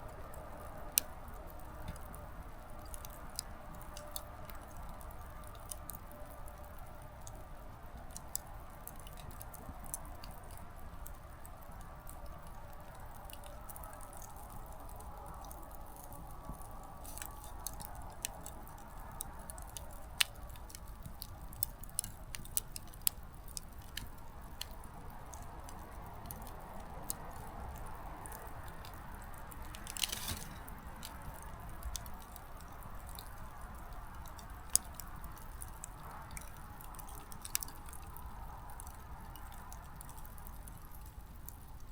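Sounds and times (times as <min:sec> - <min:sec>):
firewood crackles and pops: 0:00.0 - 0:41.9
fire hissing: 0:29.8 - 0:30.9.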